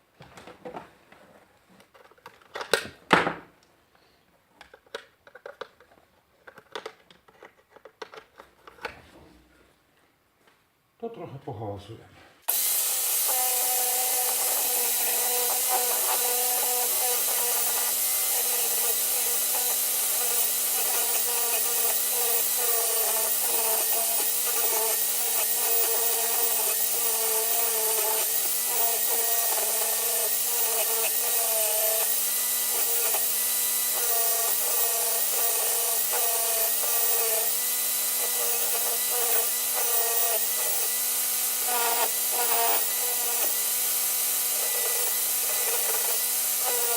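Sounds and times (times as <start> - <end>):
electric power tool running: 12.5 - 46.9.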